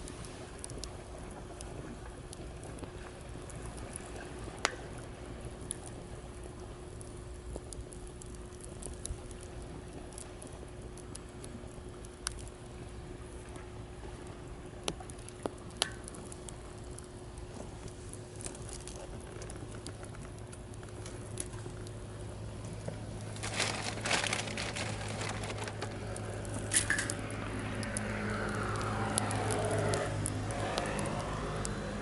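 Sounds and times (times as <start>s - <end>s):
campfire crackling and popping: 0.0s - 32.0s
vehicle engine hum: 22.4s - 32.0s.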